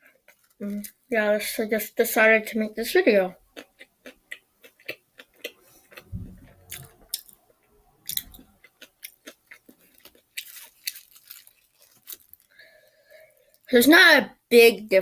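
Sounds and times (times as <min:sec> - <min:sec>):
crisp chewing crunches: 0:00.0 - 0:01.1, 0:03.5 - 0:12.6
wet mouth clicks: 0:03.6 - 0:07.4, 0:08.1 - 0:10.0
low dull bumps: 0:06.0 - 0:07.1.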